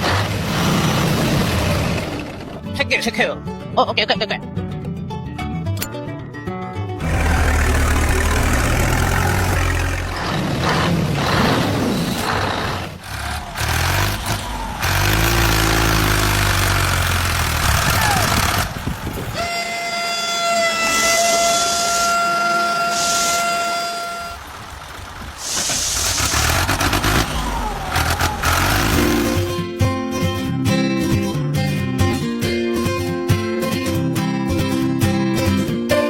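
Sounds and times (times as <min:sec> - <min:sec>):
long horn blast: 0:07.0 - 0:10.3, 0:13.0 - 0:29.5
vehicle engine running: 0:07.0 - 0:19.4, 0:23.4 - 0:29.6.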